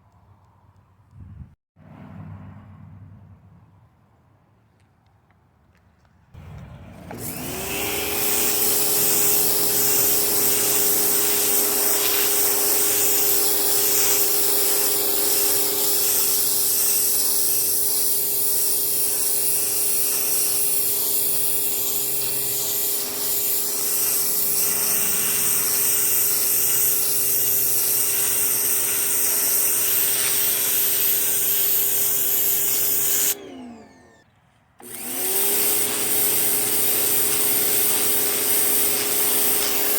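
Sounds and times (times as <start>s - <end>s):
electric pressure washer motor hum: 6.4s - 34.2s, 34.8s - 39.9s
water spray hissing: 7.2s - 33.4s, 34.9s - 39.9s.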